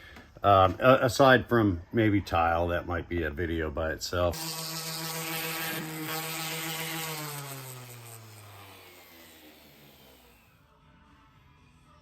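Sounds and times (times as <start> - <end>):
power tool motor whining: 4.4 - 10.6.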